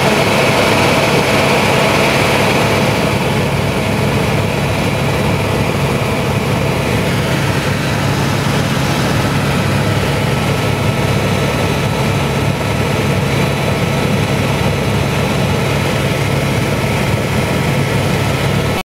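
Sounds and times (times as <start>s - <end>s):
helicopter engine and rotor: 0.0s - 18.8s.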